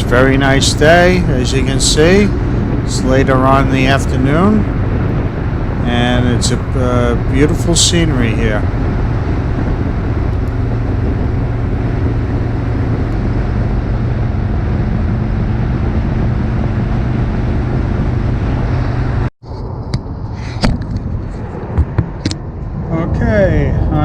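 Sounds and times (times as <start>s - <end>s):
motorcycle engine running: 0.0s - 19.3s
road noise: 0.0s - 24.0s
wind rushing over microphone: 0.0s - 24.0s.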